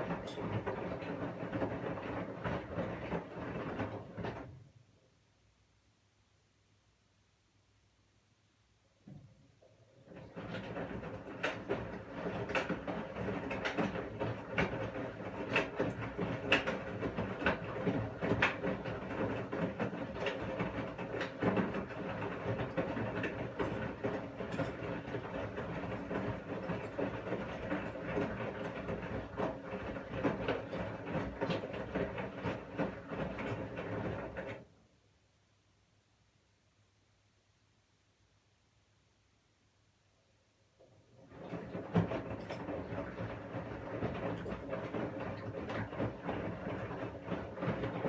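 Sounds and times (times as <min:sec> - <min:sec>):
washing machine motor hum: 0:00.0 - 0:05.1, 0:08.9 - 0:34.9, 0:40.7 - 0:48.0
washing machine drum clicks and knocks: 0:10.4 - 0:28.7.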